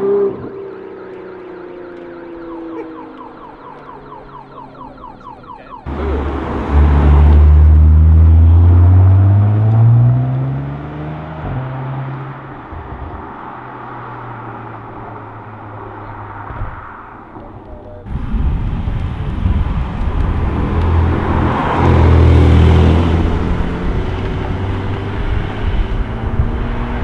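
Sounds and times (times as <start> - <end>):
car engine accelerating past: 5.9 - 17.1, 19.9 - 27.0.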